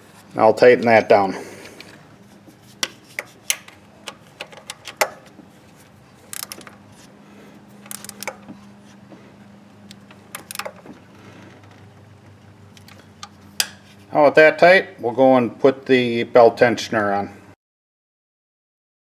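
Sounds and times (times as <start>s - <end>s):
wrench clicking on bolt: 6.3s - 6.8s, 7.8s - 8.5s, 9.9s - 10.8s, 12.7s - 13.9s.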